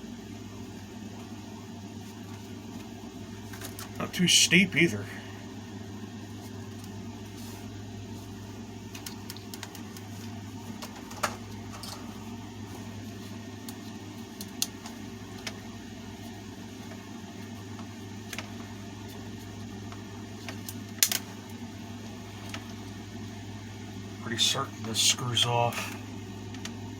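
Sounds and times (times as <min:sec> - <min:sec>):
steady low hum: 0:00.0 - 0:26.9
clicks of fan parts handled: 0:03.5 - 0:04.0, 0:08.9 - 0:12.2, 0:13.6 - 0:15.6, 0:19.9 - 0:21.6.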